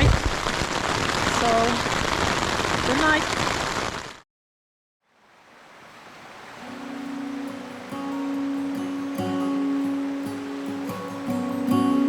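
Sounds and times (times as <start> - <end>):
steady rushing hiss: 5.4 - 12.0
music with long held notes: 6.6 - 12.0.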